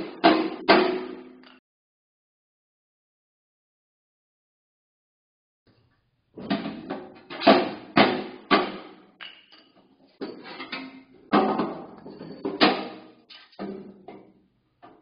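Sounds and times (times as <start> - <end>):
hammer striking metal can: 0.0 - 1.6, 7.4 - 9.4.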